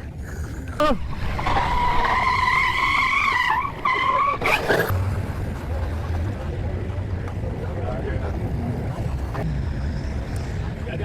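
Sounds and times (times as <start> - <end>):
tyres squealing in a skid: 1.1 - 4.9.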